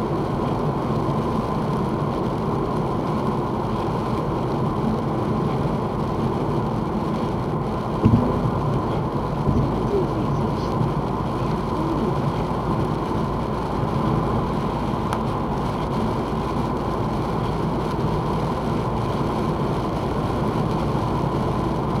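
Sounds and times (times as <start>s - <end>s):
car cabin road and engine noise: 0.0s - 22.0s
short thump: 8.0s - 8.5s.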